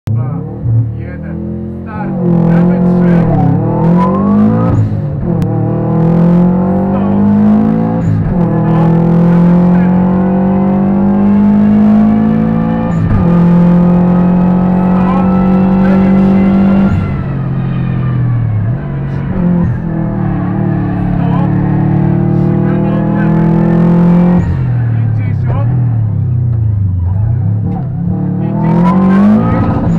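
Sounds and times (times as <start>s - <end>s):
car engine accelerating through gears: 0.1s - 29.9s.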